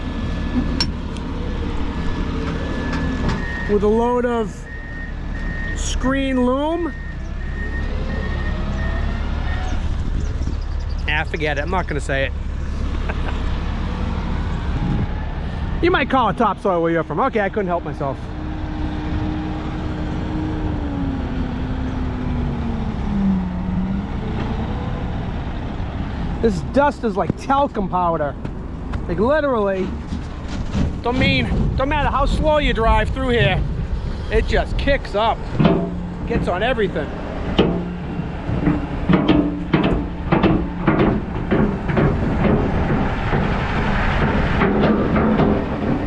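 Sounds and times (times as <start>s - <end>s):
diesel truck engine running: 0.0s - 46.0s.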